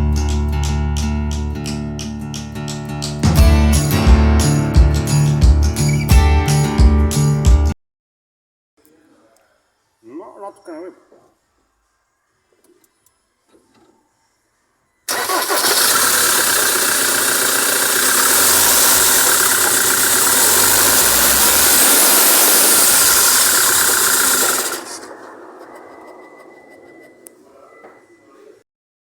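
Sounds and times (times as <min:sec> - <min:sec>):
diesel engine starting and running: 0:15.1 - 0:27.3.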